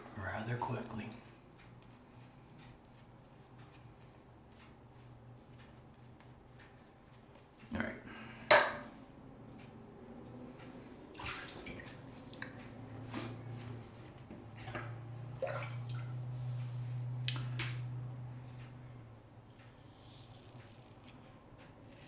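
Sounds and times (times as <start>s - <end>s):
water splashing in a sink: 11.1s - 12.6s, 14.7s - 16.6s.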